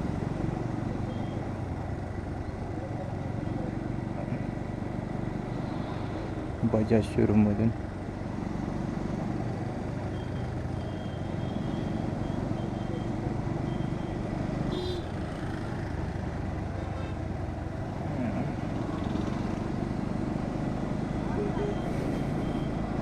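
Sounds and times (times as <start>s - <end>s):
wind and road noise: 0.0s - 23.0s
high-pitched horn tone: 14.7s - 15.1s
faint beeping: 21.3s - 23.0s.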